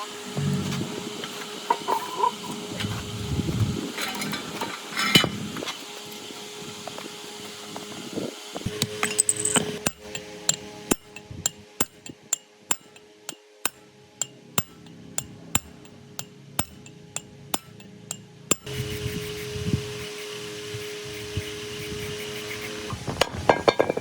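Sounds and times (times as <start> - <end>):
hammer tapping on metal: 8.7 - 18.7.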